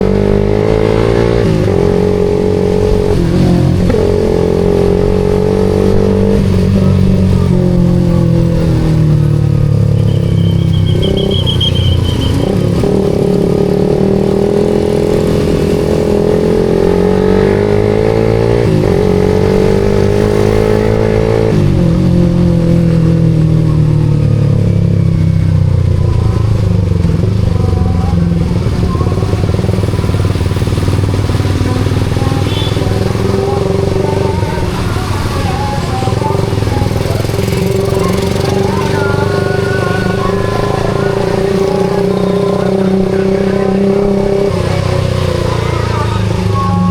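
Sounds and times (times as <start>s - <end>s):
motorcycle engine accelerating: 0.0s - 46.9s
brief high tone: 9.8s - 12.7s.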